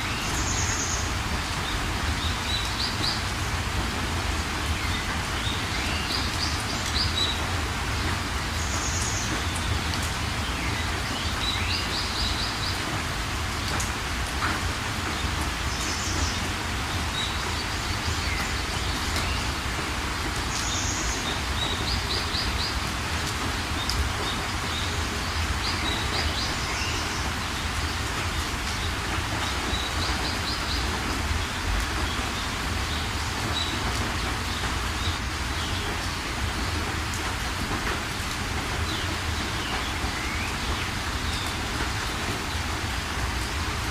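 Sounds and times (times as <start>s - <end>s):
steady rain: 0.0s - 43.9s
small birds chirping: 20.4s - 36.8s.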